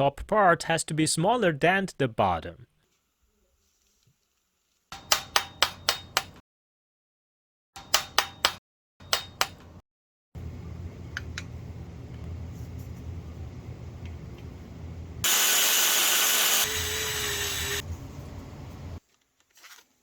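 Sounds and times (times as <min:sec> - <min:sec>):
low mechanical hum: 0:10.4 - 0:15.2, 0:16.7 - 0:19.0.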